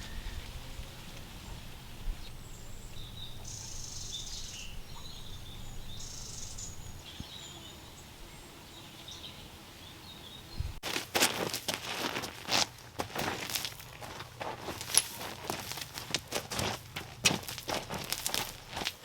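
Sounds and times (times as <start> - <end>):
low outdoor rumble: 0.0 - 7.0
bird trills: 0.0 - 10.7
birds chirping: 0.0 - 10.8.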